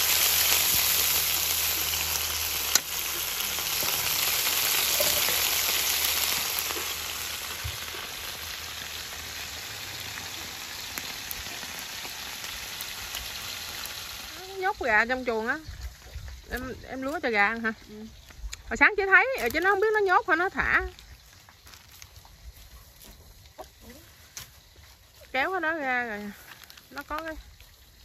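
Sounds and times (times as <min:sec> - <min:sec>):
oil popping: 0:00.0 - 0:17.8
fish sizzling in hot oil: 0:00.0 - 0:22.6, 0:24.1 - 0:28.0.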